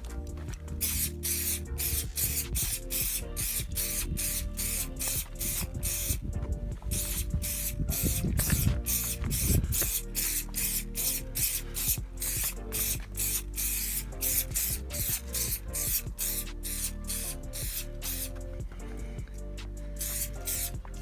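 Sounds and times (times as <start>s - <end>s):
music playing: 0.0s - 21.0s
aerosol can spraying: 0.7s - 6.3s, 6.9s - 18.6s, 19.9s - 21.0s.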